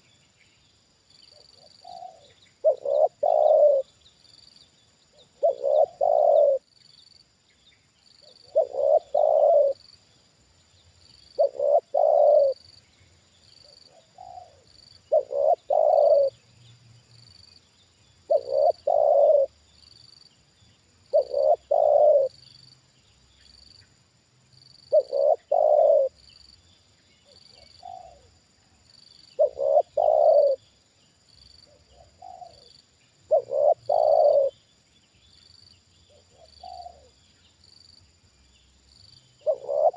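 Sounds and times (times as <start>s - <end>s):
distant dove cooing: 1.3s - 3.9s, 5.2s - 6.7s, 8.2s - 9.8s, 11.4s - 12.6s, 13.9s - 16.4s, 18.3s - 19.5s, 21.1s - 22.4s, 24.9s - 26.2s, 27.5s - 28.3s, 29.4s - 30.6s, 31.7s - 32.7s, 33.3s - 34.6s, 36.1s - 37.1s, 39.4s - 39.9s
dove cooing: 1.3s - 3.9s, 5.2s - 6.7s, 8.2s - 9.8s, 11.4s - 12.6s, 13.9s - 16.4s, 18.3s - 19.5s, 21.1s - 22.4s, 24.9s - 26.2s, 27.3s - 28.3s, 29.4s - 30.6s, 31.7s - 34.6s, 36.1s - 37.1s, 39.4s - 39.9s.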